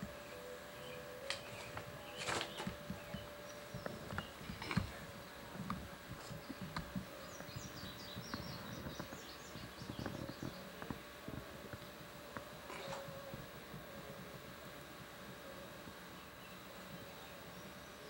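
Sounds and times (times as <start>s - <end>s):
faint steady hum: 0.0s - 18.0s
small bird chirping: 6.3s - 10.8s.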